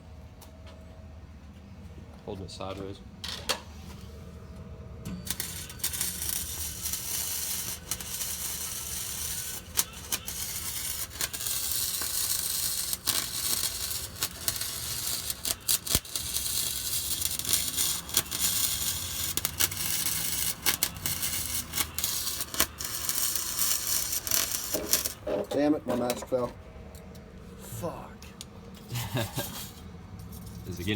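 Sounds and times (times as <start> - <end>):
welder arc crackling: 5.2 - 25.2.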